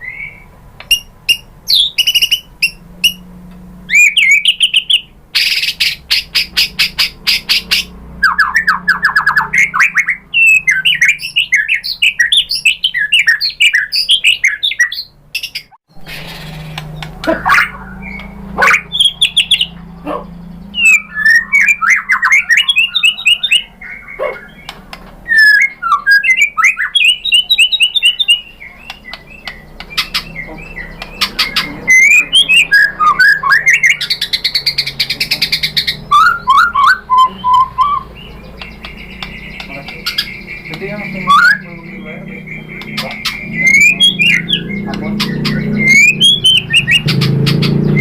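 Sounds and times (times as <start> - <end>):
bird singing varied whistled song: 0.0 - 3.3, 3.9 - 48.0
steady low hum: 0.0 - 12.2
harsh buzzy chatter: 15.9 - 47.6.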